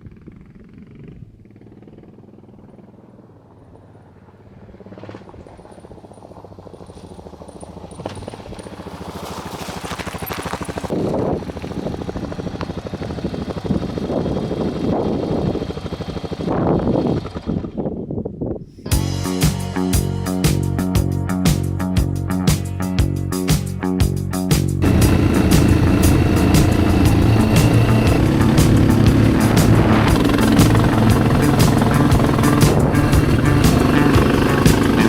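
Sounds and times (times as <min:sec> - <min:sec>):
motorcycle engine running: 0:00.0 - 0:17.8, 0:24.8 - 0:35.0.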